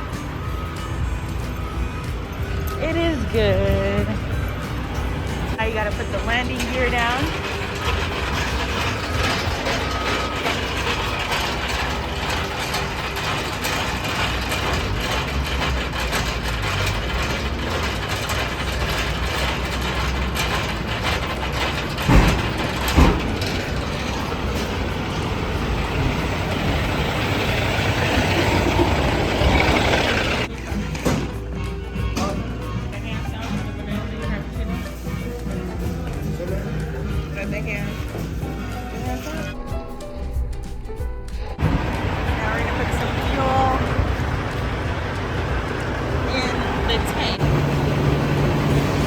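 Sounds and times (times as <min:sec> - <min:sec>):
diesel engine idling: 0:00.0 - 0:49.0
loud metal clunks: 0:02.8 - 0:32.6, 0:39.6 - 0:49.0
landing gear cranking: 0:04.0 - 0:31.0.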